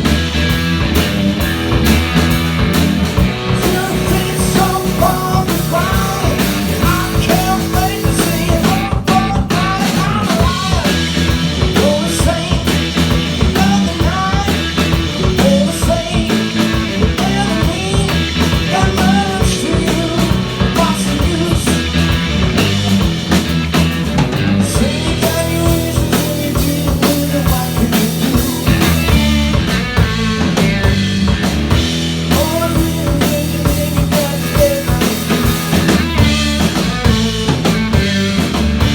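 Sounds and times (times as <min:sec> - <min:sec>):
bass guitar: 0:00.0 - 0:38.9
drum kit: 0:00.0 - 0:38.9
electric guitar lead melody: 0:00.0 - 0:38.9
person singing: 0:03.4 - 0:22.1, 0:24.5 - 0:30.6, 0:32.3 - 0:38.4.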